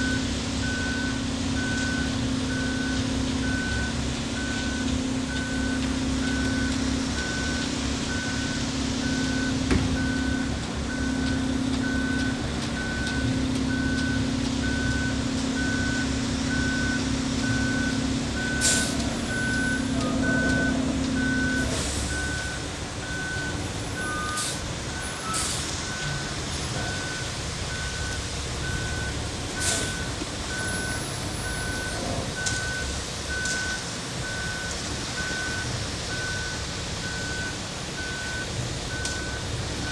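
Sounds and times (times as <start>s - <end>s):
diesel engine running: 0.0s - 33.4s
back-up alarm beeping: 6.3s - 16.0s.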